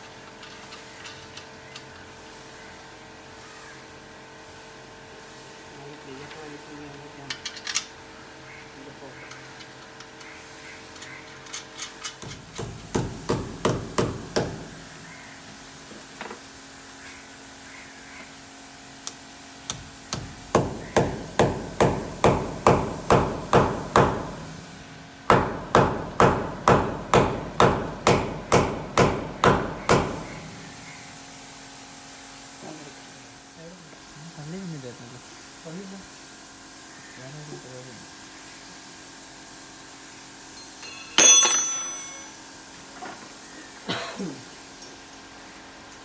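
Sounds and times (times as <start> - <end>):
hammer blows ringing: 40.9 - 42.4.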